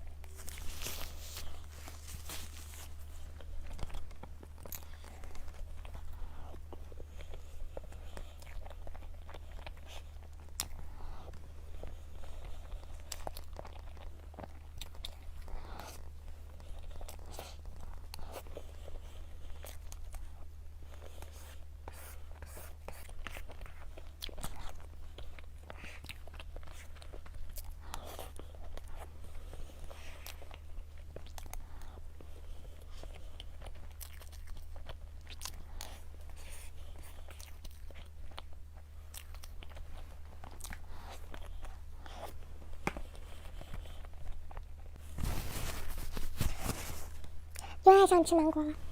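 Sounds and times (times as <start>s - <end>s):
steady low hum: 0.0s - 48.9s
person chewing and biting: 32.8s - 46.9s.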